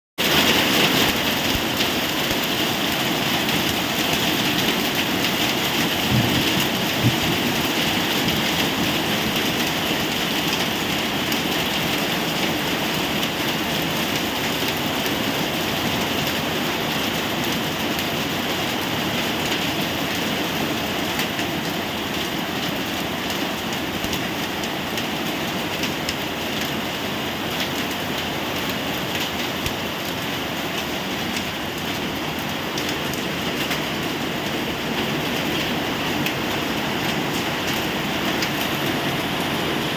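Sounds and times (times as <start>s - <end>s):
rain falling: 0.2s - 39.9s
low knocks: 6.0s - 7.5s.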